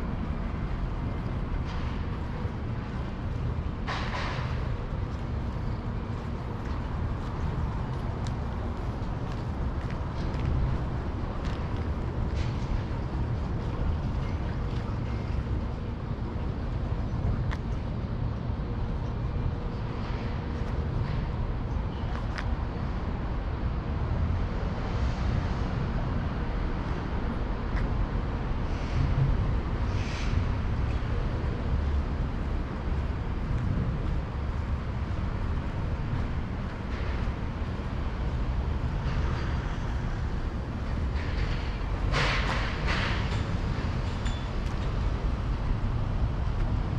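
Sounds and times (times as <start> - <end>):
low outdoor rumble: 0.0 - 46.9.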